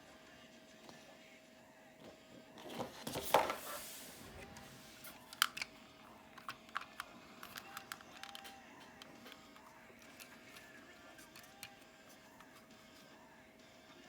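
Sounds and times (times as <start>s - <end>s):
plastic toy rustle: 6.3s - 13.0s.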